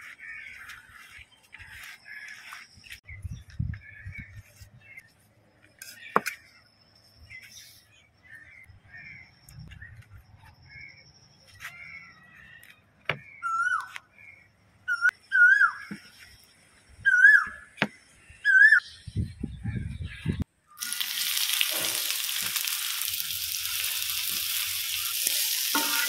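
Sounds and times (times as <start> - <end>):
downward-bending whistled bird call: 14.9 - 15.9, 17.0 - 17.8.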